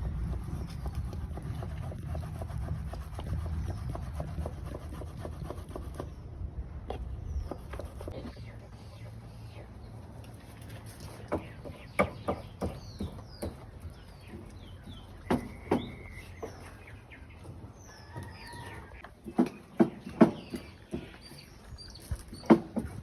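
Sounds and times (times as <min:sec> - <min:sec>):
birds chirping: 0:00.0 - 0:23.0
sharp knocks and clatter: 0:19.1 - 0:21.2.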